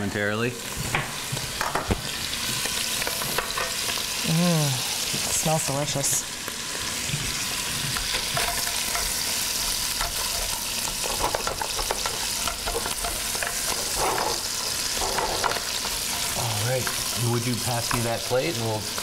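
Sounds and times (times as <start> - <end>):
cheese sizzling in a pot: 0.1 - 19.0
wooden spatula scraping a pot: 7.6 - 18.2.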